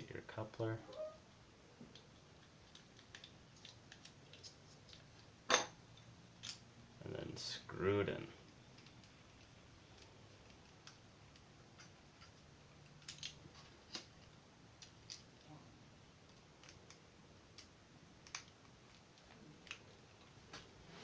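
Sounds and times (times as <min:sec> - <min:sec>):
plastic parts clicking: 0:08.8 - 0:15.5.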